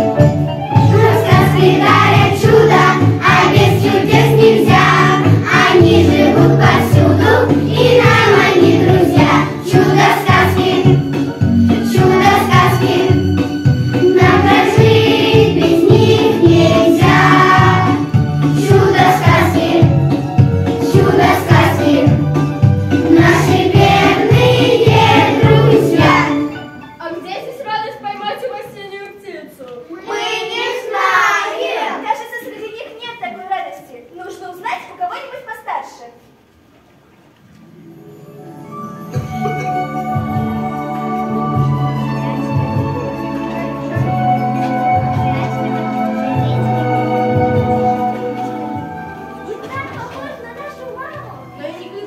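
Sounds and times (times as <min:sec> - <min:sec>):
instrumental accompaniment with beat: 0:00.0 - 0:27.0, 0:38.4 - 0:51.7
choir singing: 0:00.8 - 0:11.2, 0:11.8 - 0:13.4, 0:14.0 - 0:20.1, 0:20.8 - 0:22.2, 0:23.0 - 0:26.5, 0:30.1 - 0:32.0.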